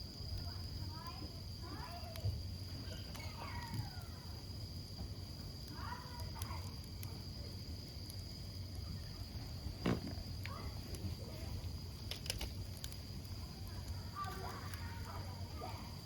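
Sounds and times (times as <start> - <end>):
campfire burning with pops: 0.0 - 16.0.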